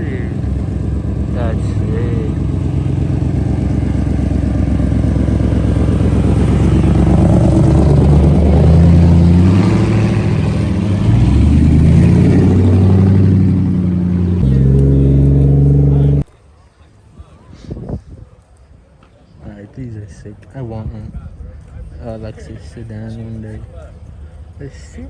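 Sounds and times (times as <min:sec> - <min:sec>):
car engine revving: 0:00.0 - 0:16.3.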